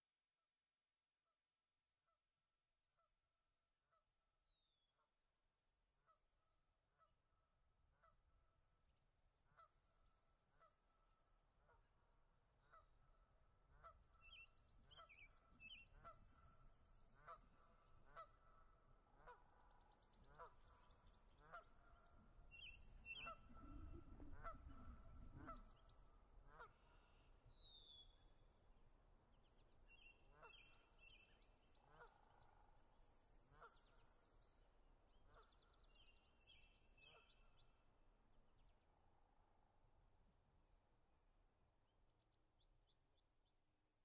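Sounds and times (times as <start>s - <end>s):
faint repeating bird calls: 6.0s - 39.8s.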